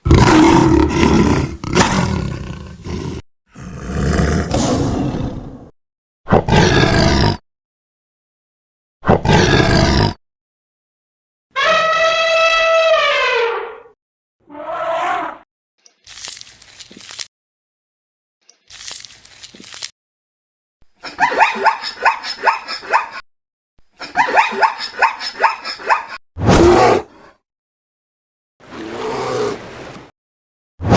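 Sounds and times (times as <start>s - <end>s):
lion roaring: 0.0s - 5.7s, 28.6s - 30.0s
dog barking: 21.2s - 23.2s.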